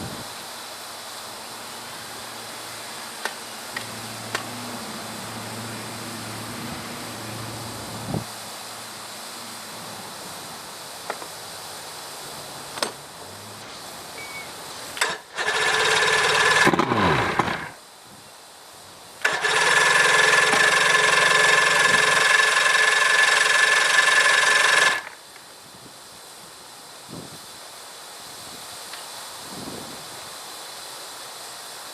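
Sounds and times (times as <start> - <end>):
outboard motor running: 15.0 - 17.8, 19.2 - 25.2.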